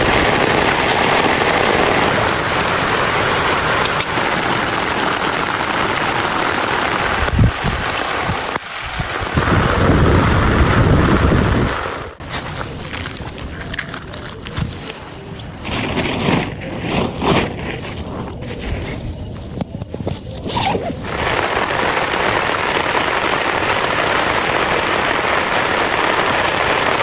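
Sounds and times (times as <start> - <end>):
heavy rain pouring: 0.0 - 15.0, 20.8 - 27.0.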